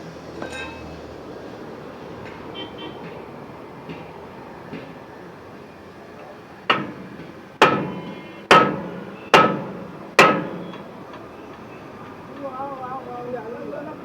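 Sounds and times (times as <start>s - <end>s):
hammer striking metal: 6.7s - 10.9s.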